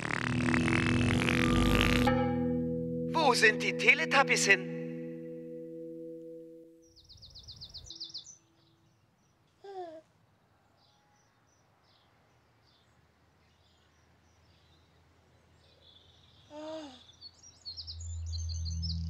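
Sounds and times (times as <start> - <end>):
low steady musical tone: 0.3 - 7.0, 17.8 - 19.0
faint birdsong chirps: 4.9 - 19.0
baby vocalizing: 16.5 - 17.1.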